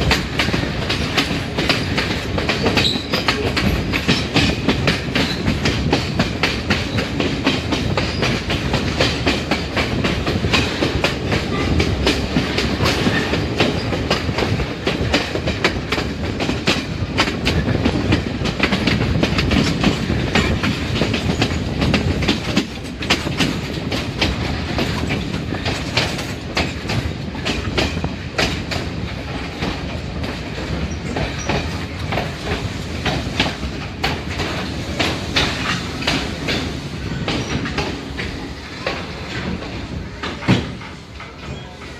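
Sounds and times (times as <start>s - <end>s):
train rumbling along track: 0.0s - 41.9s
wheels clicking over rails: 0.0s - 41.9s.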